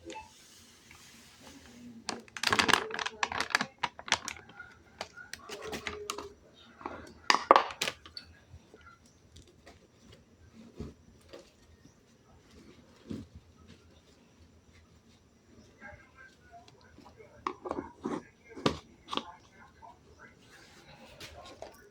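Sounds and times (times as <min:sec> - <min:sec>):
small hard objects clattering: 0:02.0 - 0:08.2.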